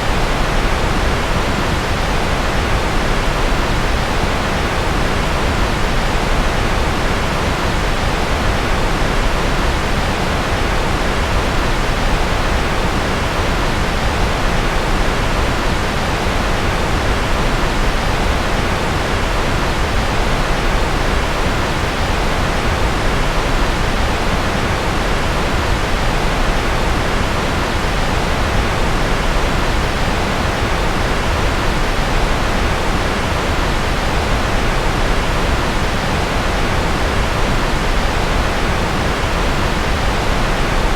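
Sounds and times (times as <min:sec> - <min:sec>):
steady rushing white noise: 0:00.0 - 0:40.9.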